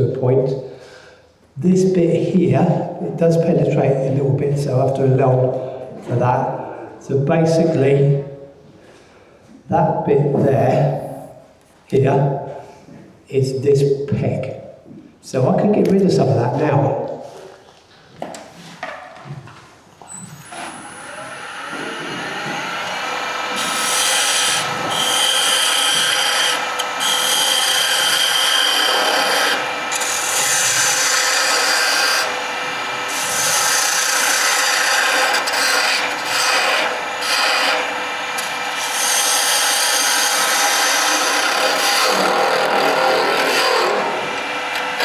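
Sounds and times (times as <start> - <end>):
lathe motor hum: 20.4 - 45.0
lathe tool rasping on wood: 20.4 - 45.0.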